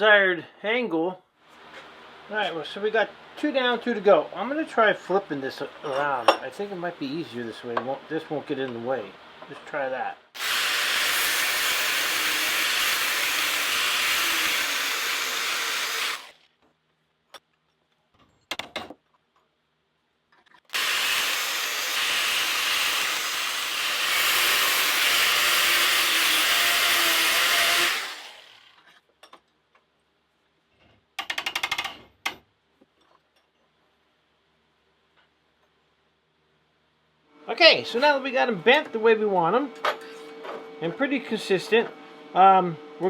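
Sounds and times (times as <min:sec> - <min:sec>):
angle grinder cutting steel: 0:10.4 - 0:16.4, 0:20.7 - 0:28.8.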